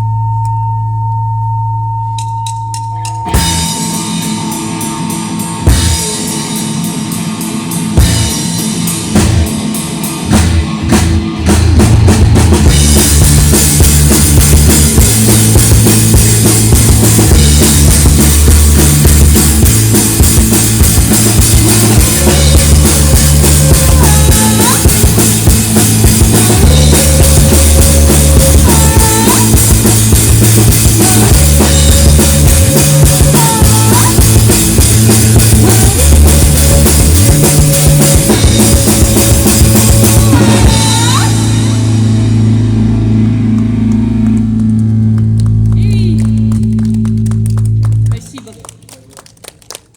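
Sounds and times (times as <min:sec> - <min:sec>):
live rock band playing: 0:02.1 - 0:49.8
drum kit steady beat: 0:02.9 - 0:44.7.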